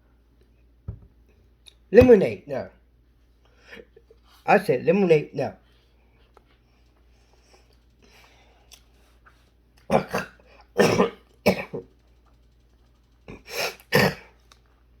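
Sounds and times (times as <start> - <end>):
man coughing and gagging: 9.9 - 11.9, 13.3 - 14.4.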